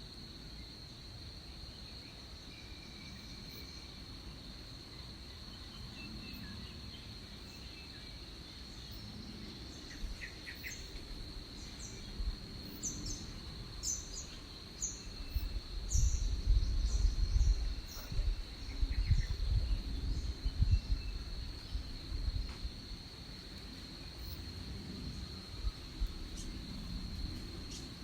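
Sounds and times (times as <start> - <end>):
low rumbling gusts: 11.1 - 28.0.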